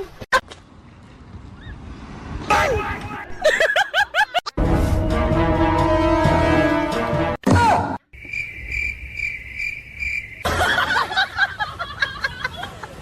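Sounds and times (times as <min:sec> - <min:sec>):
music: 0:04.6 - 0:07.4.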